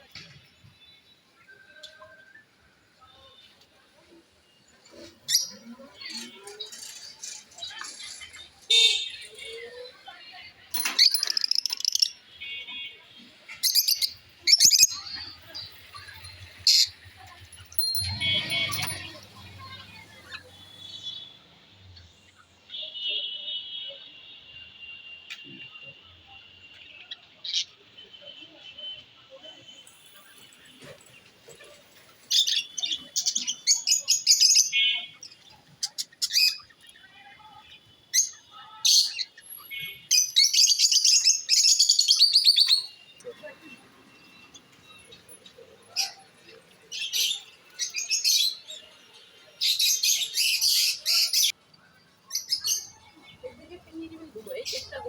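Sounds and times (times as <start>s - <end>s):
parrots chirping: 11.0s - 12.2s.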